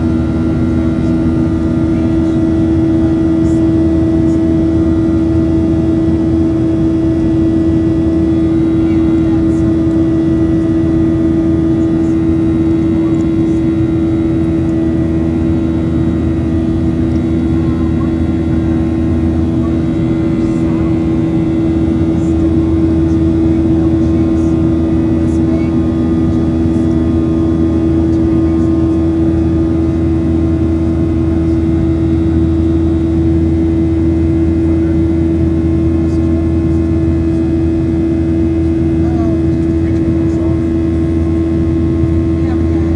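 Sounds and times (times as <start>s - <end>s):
jet engine hum in cabin: 0.0s - 42.9s
low rumble of engine and airflow: 0.0s - 42.9s.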